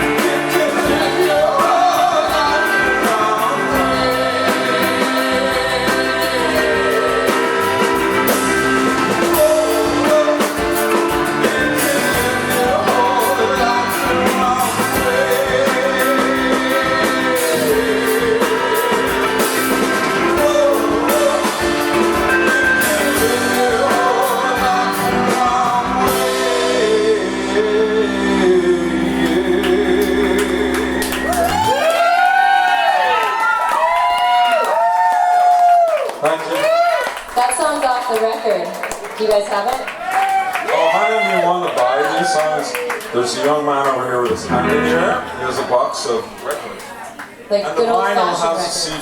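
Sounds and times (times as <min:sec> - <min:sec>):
rock band playing live: 0:00.0 - 0:31.8, 0:44.2 - 0:46.4
lead singer singing: 0:00.0 - 0:32.0
drums: 0:00.0 - 0:47.5.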